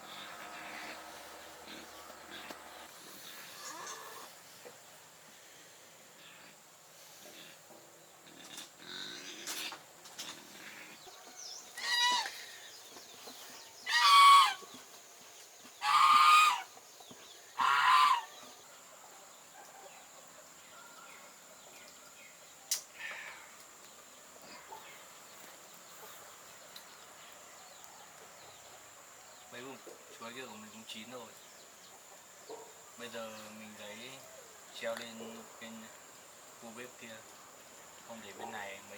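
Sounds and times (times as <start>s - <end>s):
fowl calling: 11.8s - 12.6s, 13.8s - 14.8s, 15.8s - 16.8s, 17.6s - 18.5s.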